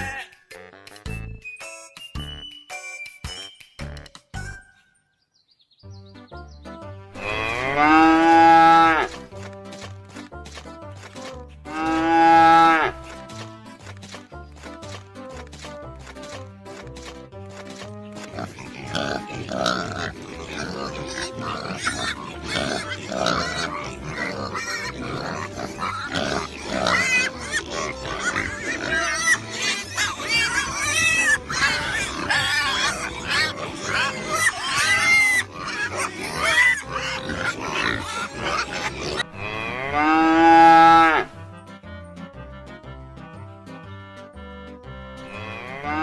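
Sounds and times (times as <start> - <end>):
background music: 0.0 - 46.0
farm animals squealing: 18.2 - 41.3.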